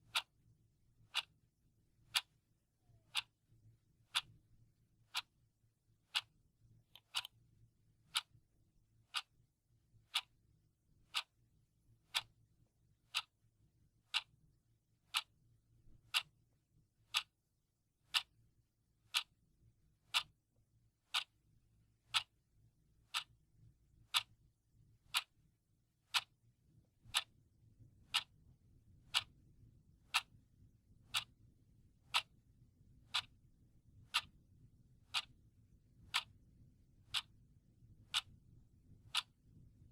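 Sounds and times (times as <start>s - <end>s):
clock ticking: 0.0s - 0.3s, 1.1s - 1.3s, 2.1s - 2.4s, 3.0s - 3.3s, 4.1s - 4.3s, 5.1s - 5.3s, 6.1s - 6.3s, 6.9s - 7.3s, 8.1s - 8.4s, 9.1s - 9.3s, 10.1s - 10.3s, 11.1s - 11.3s, 12.1s - 12.3s, 13.1s - 13.3s, 14.1s - 14.3s, 15.1s - 15.3s, 16.1s - 16.3s, 17.1s - 17.3s, 18.1s - 18.3s, 19.1s - 19.3s, 20.1s - 20.3s, 21.1s - 21.3s, 22.1s - 22.3s, 23.1s - 23.3s, 24.1s - 24.4s, 25.1s - 25.3s, 26.1s - 26.4s, 27.1s - 27.3s, 28.1s - 28.4s, 29.1s - 29.3s, 30.1s - 30.3s, 31.1s - 31.3s, 32.1s - 32.4s, 33.1s - 33.3s, 35.1s - 35.3s, 36.1s - 36.3s, 38.1s - 38.3s, 39.1s - 39.4s.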